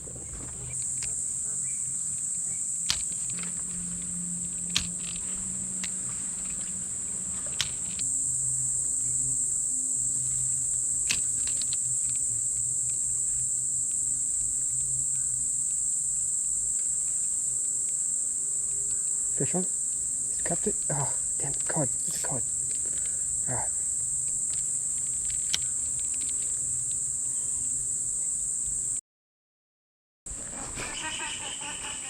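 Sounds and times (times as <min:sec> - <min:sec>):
insects droning: 0:00.0 - 0:29.0, 0:30.3 - 0:32.0
sharp clicks: 0:02.8 - 0:08.1, 0:24.2 - 0:27.0.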